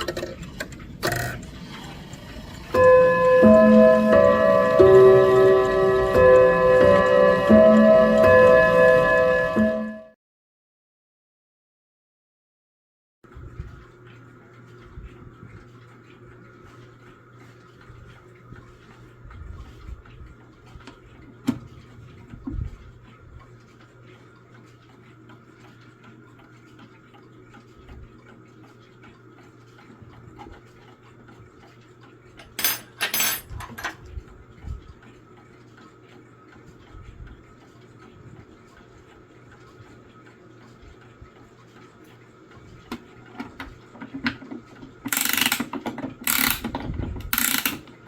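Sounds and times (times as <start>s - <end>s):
mantle clock ticking: 2.7s - 9.3s.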